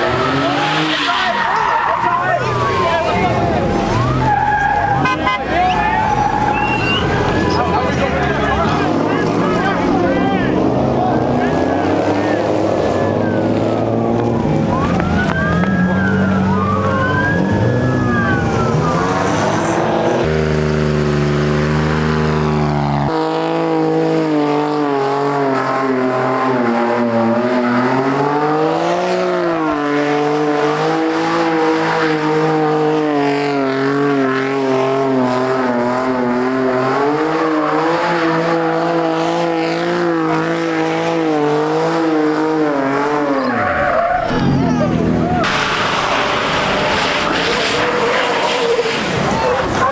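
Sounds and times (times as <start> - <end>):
tyres squealing: 0.0 - 10.3, 43.0 - 49.9
car engine revving: 0.0 - 49.9.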